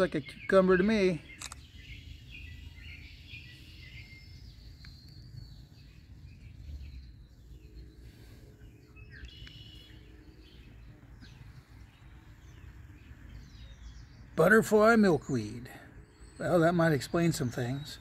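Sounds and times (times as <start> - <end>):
birds chirping: 0.0 - 18.0
low steady rumble: 1.5 - 14.9.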